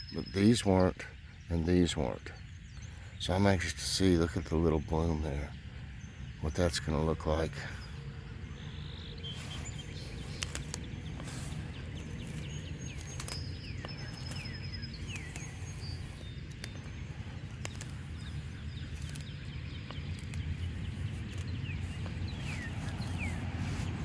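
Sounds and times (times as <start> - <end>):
birds chirping: 0.0 - 24.0
sharp clicks: 10.2 - 23.3.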